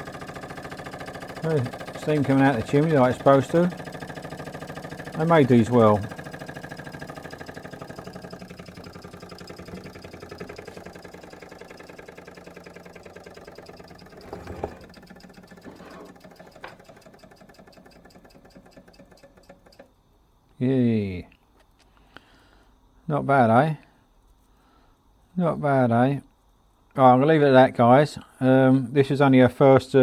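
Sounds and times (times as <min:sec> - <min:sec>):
toy steam engine exhaust beat: 0:00.0 - 0:19.9.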